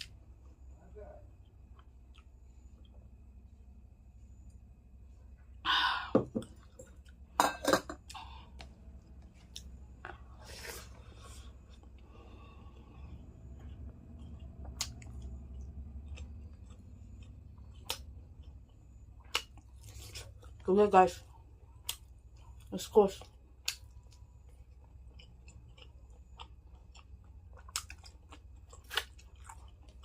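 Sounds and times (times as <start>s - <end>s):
chewing: 1.3s - 3.2s, 8.0s - 20.6s, 21.4s - 30.0s.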